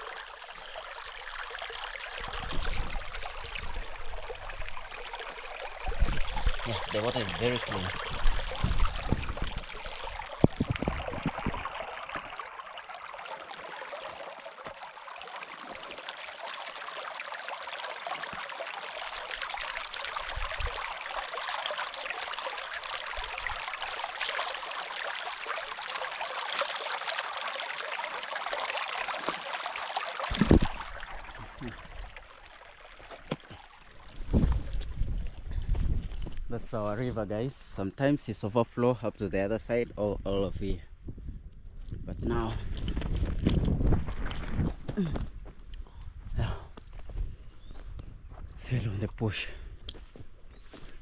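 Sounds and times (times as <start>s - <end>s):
river running over stones: 0.0s - 35.2s.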